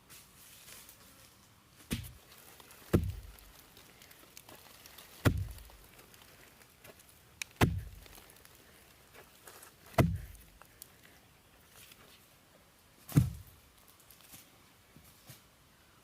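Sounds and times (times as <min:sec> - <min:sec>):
heavy blows on wood: 0:02.9 - 0:03.4, 0:05.2 - 0:05.7, 0:07.6 - 0:08.2, 0:09.9 - 0:10.4.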